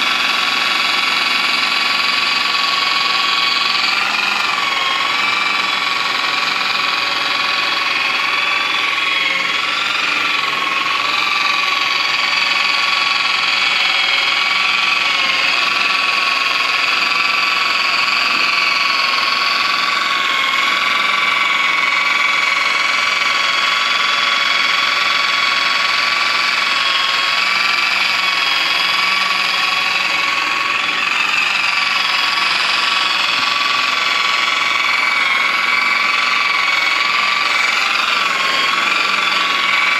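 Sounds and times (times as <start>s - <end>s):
power polisher motor whining: 0.0s - 39.9s.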